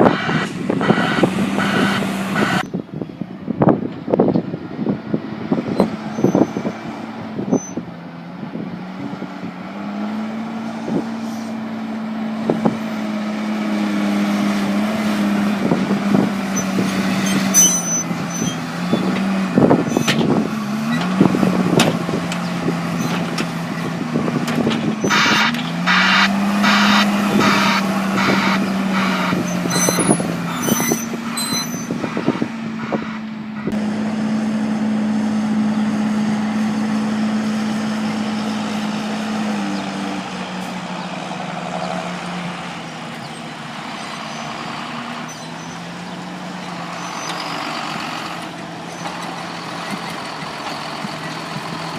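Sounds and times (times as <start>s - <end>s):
diesel farm machinery engine: 0.0s - 51.9s
knocks and clunks: 20.0s - 23.6s, 24.2s - 25.8s.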